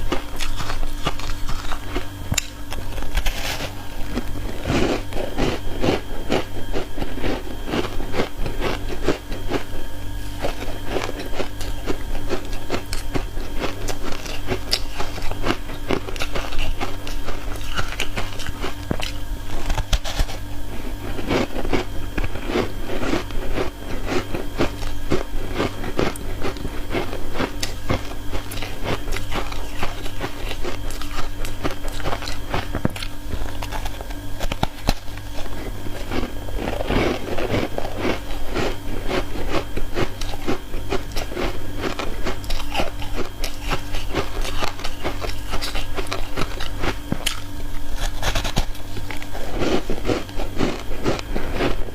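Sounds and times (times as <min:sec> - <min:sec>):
ice crunching in mouth: 0:00.0 - 0:09.7, 0:10.4 - 0:20.4, 0:21.2 - 0:51.9
low hum: 0:00.0 - 0:51.9.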